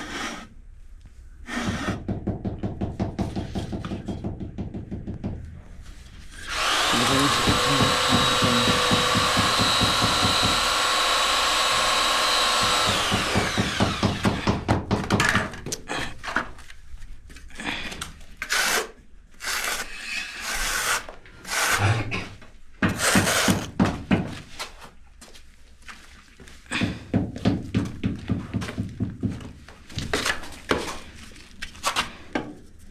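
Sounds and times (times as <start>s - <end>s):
power drill whining: 6.4s - 14.5s.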